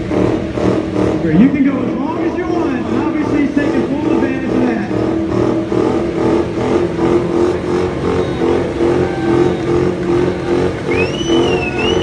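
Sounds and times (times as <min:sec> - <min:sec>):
car engine at high revs: 0:00.0 - 0:12.0
shrill whistle: 0:10.9 - 0:12.0.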